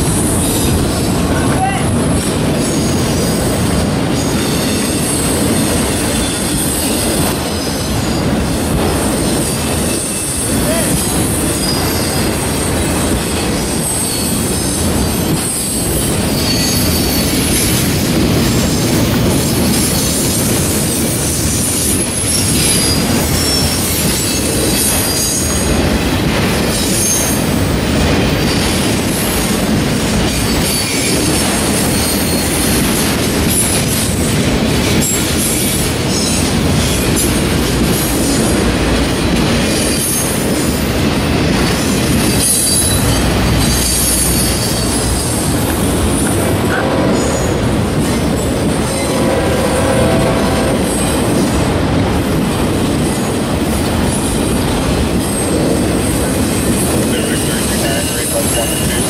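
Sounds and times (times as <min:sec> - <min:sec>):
freight train wheels rumbling on rail: 0:00.0 - 0:59.0
high-pitched wheel squeals: 0:16.3 - 0:17.7, 0:48.8 - 0:51.3.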